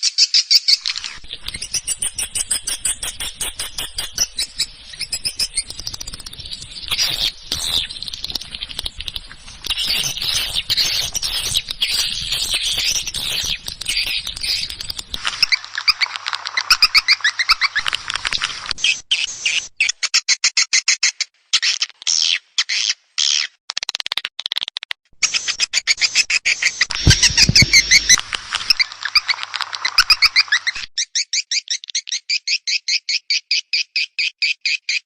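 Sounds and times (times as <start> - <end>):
high twittering bird chirps: 0.0 - 8.8, 9.6 - 16.0, 26.0 - 29.3.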